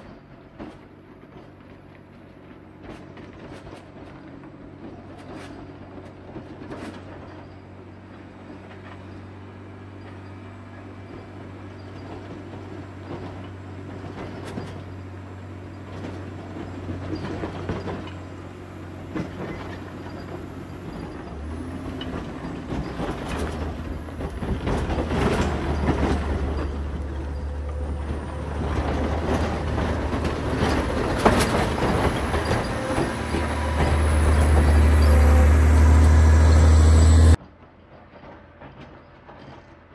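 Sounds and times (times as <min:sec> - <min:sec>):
diesel engine under load: 0:00.0 - 0:39.9
rattling and clanking: 0:11.8 - 0:37.4.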